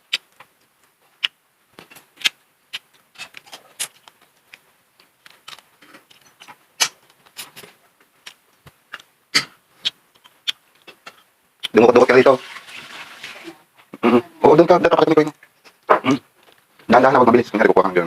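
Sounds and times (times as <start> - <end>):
seafood shells cracking: 1.2 - 7.6, 9.8 - 11.8
chewing crunches: 2.0 - 7.6.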